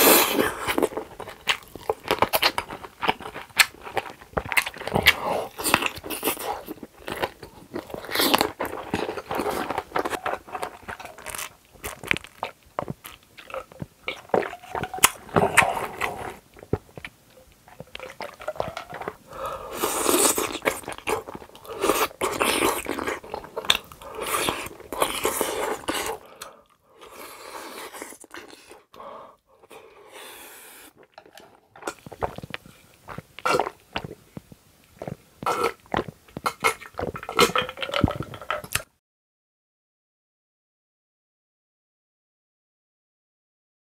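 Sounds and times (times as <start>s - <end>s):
biting and chewing sausage: 0.0s - 29.0s, 30.8s - 38.9s
drinking sounds: 12.4s - 27.7s.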